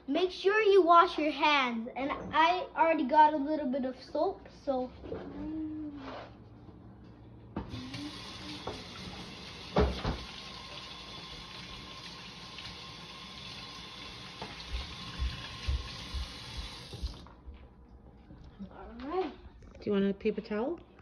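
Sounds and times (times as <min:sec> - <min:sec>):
faucet running into metal sink: 0:07.7 - 0:17.3
thump: 0:09.7 - 0:10.3
hands washing under water: 0:14.2 - 0:17.4.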